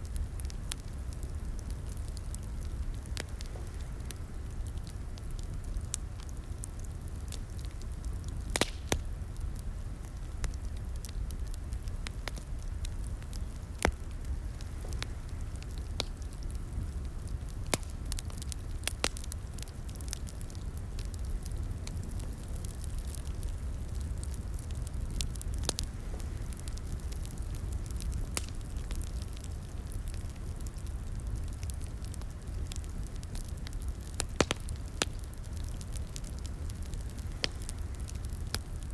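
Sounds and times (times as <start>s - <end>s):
low rumble of flames: 0.0s - 38.9s
wood fire pops and snaps: 7.2s - 9.4s, 10.1s - 38.9s.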